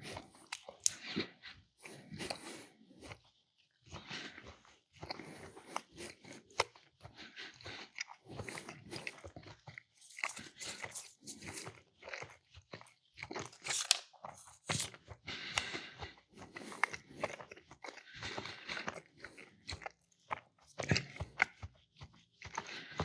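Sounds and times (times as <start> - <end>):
chewing and biting food: 0.0 - 23.0
lip smacks: 10.0 - 11.7.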